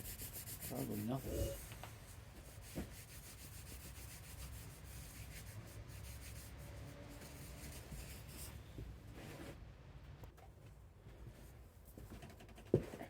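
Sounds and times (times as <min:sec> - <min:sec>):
faint rubbing and scraping: 0:00.0 - 0:09.6.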